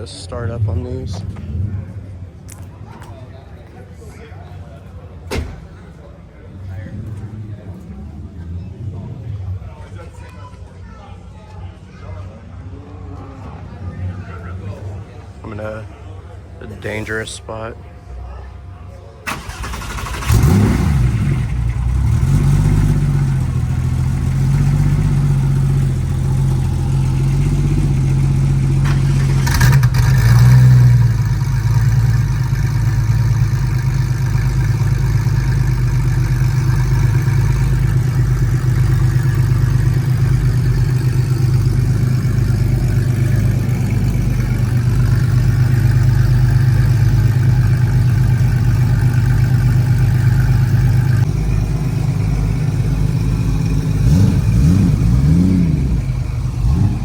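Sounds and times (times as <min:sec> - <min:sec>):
car engine idling: 0:19.2 - 0:57.0.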